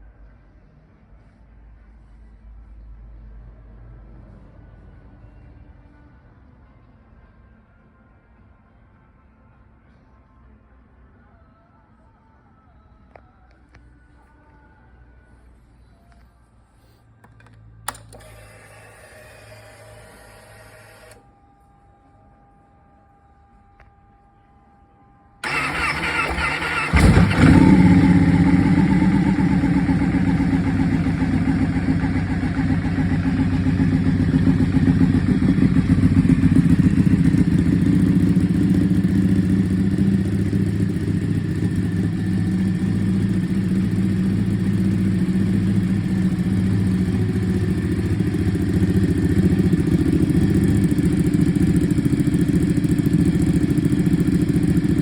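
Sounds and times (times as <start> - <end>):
motorcycle starter cranking: 25.4 - 31.0
motorcycle engine idling: 25.4 - 55.0.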